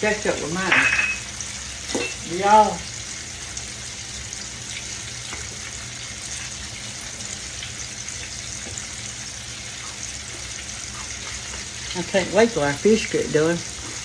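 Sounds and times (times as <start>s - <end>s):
fish sizzling in hot oil: 0.0s - 14.0s.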